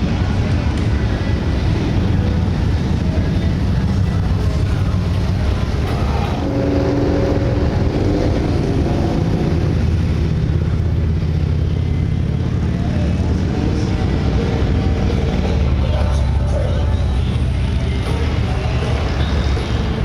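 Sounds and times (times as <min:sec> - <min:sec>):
motorcycle engines rumbling: 0:00.0 - 0:20.0.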